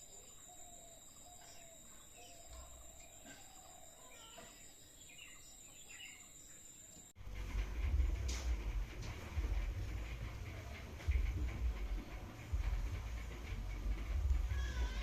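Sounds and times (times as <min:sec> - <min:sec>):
insect trill: 0:00.0 - 0:07.2, 0:09.4 - 0:15.0
birds calling: 0:00.0 - 0:15.0
low rumbling noise: 0:07.2 - 0:15.0.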